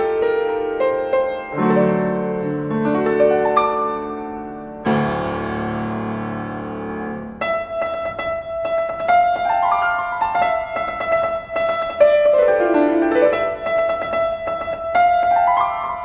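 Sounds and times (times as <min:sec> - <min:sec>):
piano playing: 0:00.0 - 0:16.0.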